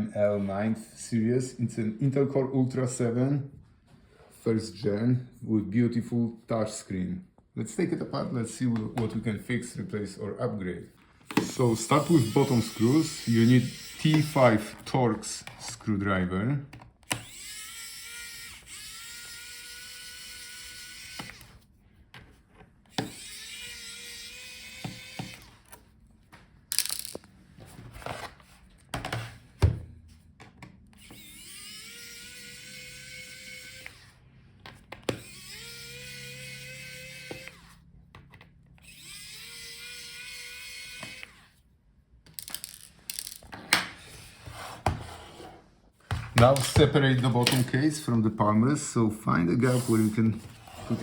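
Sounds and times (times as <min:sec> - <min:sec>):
electric screwdriver whirring: 0:11.3 - 0:14.9, 0:17.0 - 0:21.6, 0:22.9 - 0:25.8, 0:30.9 - 0:34.2, 0:35.0 - 0:37.8, 0:38.8 - 0:41.5.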